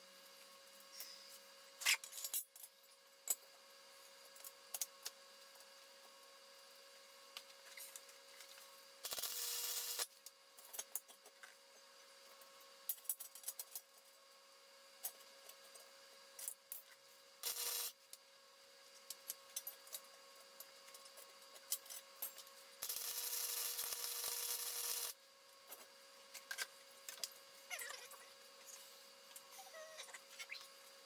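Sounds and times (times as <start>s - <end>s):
electric arc welding crackle: 9.1s - 10.0s, 17.4s - 18.0s, 22.8s - 25.2s.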